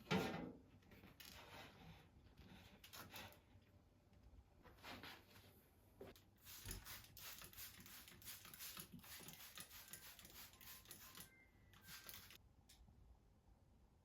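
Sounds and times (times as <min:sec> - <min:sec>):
faint rustling and handling noises: 0:00.6 - 0:06.9.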